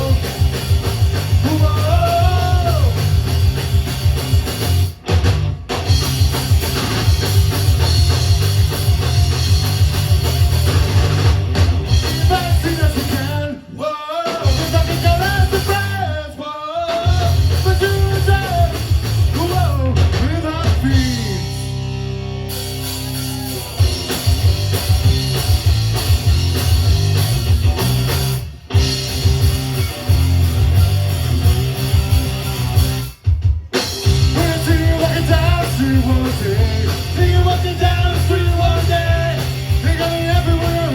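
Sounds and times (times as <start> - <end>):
distorted guitar: 0.0 - 40.9
drum kit: 0.0 - 40.9
person singing: 1.4 - 3.0, 19.4 - 21.7, 34.2 - 40.9.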